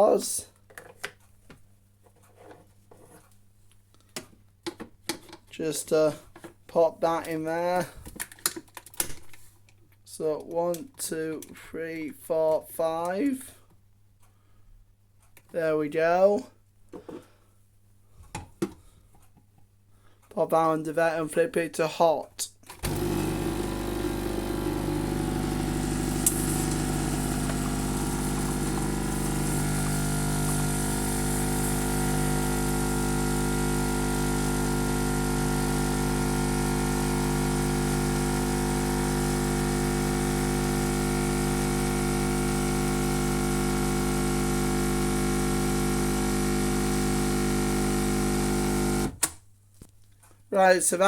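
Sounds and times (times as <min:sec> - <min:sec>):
coffee machine pump buzzing: 0:22.8 - 0:49.2.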